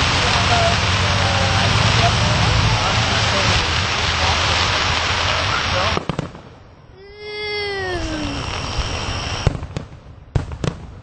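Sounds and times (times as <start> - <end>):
fireworks bangs: 0.0 - 11.0
long voice-like falling call: 7.0 - 8.6.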